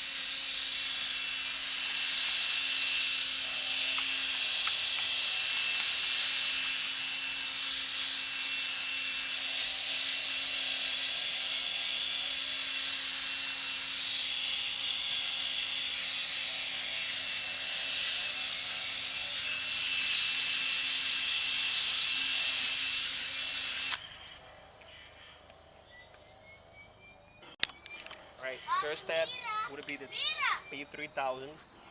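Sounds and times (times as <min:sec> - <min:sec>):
electric drill motor whine: 0:00.0 - 0:24.1
sanding hiss: 0:00.0 - 0:24.1.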